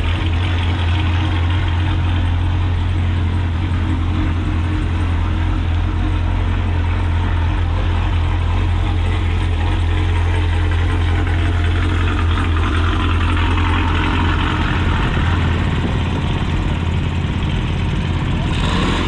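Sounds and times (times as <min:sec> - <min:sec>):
car engine running steadily: 0:00.0 - 0:19.0.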